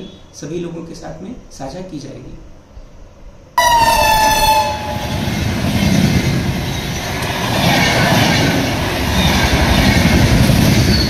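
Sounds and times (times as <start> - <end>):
held tone falling in pitch: 3.6 - 5.3
train wheels clattering on rails: 4.7 - 11.0.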